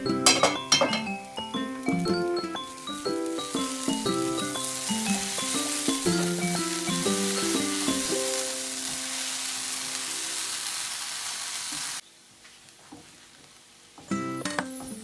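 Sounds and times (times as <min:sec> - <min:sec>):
light piano music: 0:00.0 - 0:10.2
food sizzling in oil: 0:00.0 - 0:12.0.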